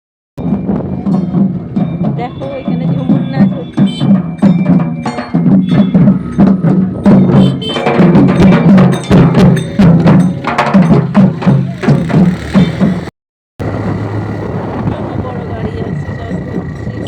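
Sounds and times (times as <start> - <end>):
rapid drumming: 0.4 - 13.1.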